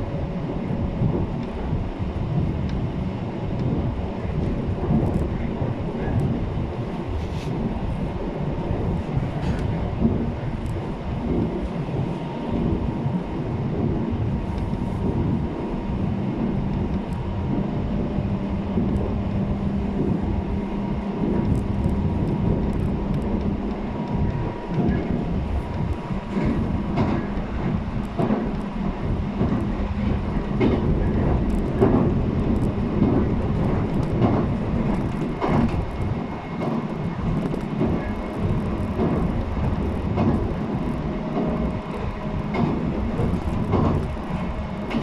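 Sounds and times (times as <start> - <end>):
train running rumble: 0.0 - 45.0
wheel clacks over rail joints: 21.2 - 45.0.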